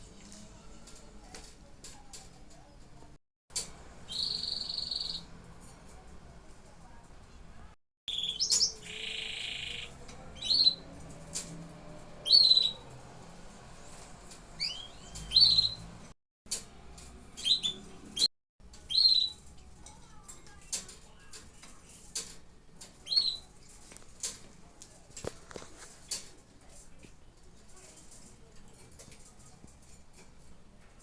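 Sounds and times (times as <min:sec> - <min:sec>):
canaries chirping: 0:04.0 - 0:05.4, 0:08.1 - 0:16.1, 0:17.3 - 0:19.5, 0:21.2 - 0:23.9.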